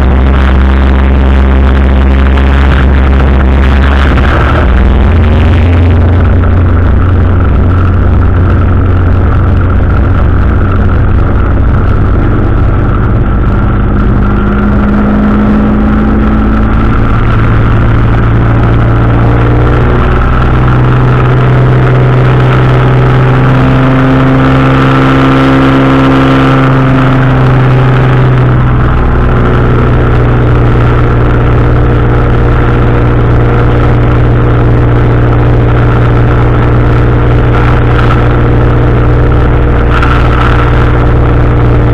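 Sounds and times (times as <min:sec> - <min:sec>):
engine and propeller droning: 0:00.0 - 0:41.9.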